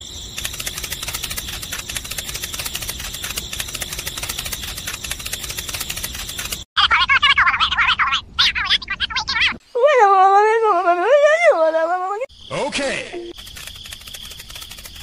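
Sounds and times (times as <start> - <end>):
rapid clicking rattle: 0.4 - 6.7, 13.4 - 15.0.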